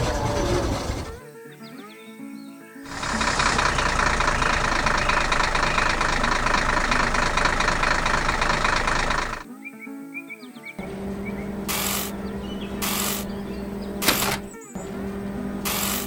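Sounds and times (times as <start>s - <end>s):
cartoon machine engine rattle: 0.0s - 1.2s, 2.9s - 9.4s, 11.0s - 16.0s
light music: 9.4s - 16.0s.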